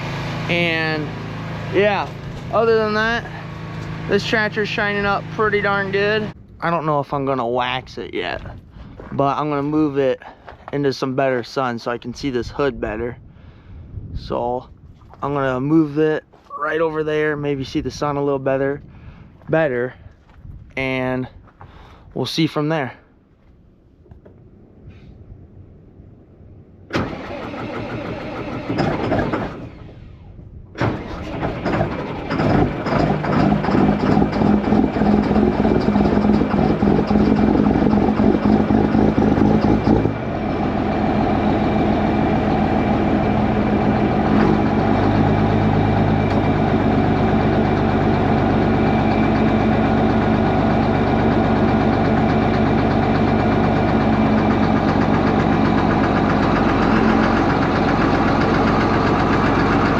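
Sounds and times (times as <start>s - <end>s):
diesel tractor engine idling: 0.0s - 11.7s, 26.2s - 59.9s
engine starter cranking: 26.9s - 40.3s.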